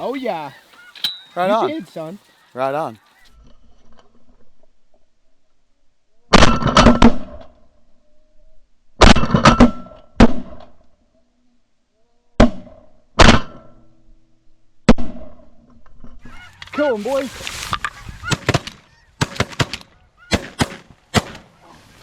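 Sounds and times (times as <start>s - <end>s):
shotguns firing: 18.3s - 21.6s.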